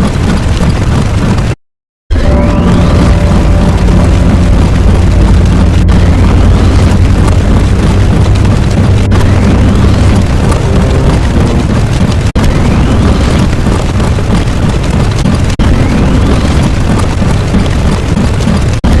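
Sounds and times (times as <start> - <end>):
explosion-like rumble: 2.1 - 19.0
faint rising sweeps: 2.2 - 11.7.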